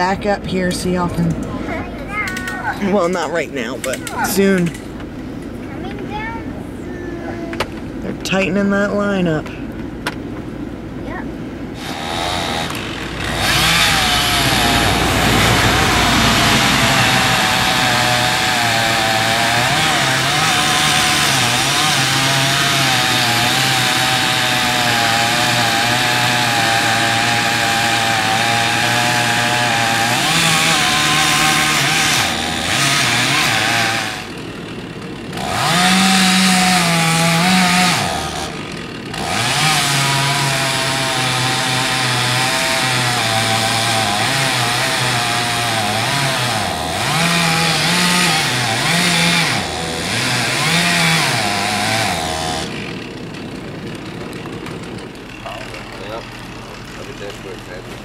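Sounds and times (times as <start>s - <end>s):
chainsaw cutting tree: 11.8s - 58.0s.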